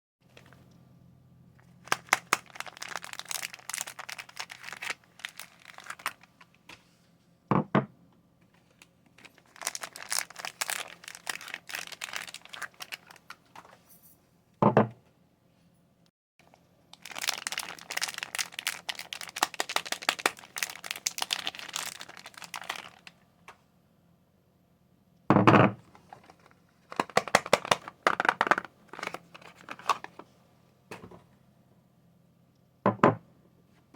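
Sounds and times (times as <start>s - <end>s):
packaging crinkling and tearing: 1.6s - 6.6s, 8.7s - 13.5s, 16.4s - 23.2s, 25.8s - 30.3s.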